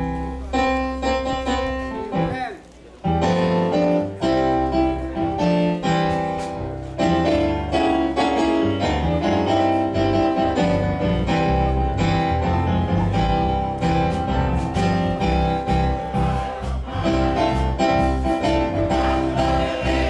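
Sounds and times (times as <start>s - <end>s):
piano chords over bass line: 0.0s - 2.4s, 3.1s - 20.0s.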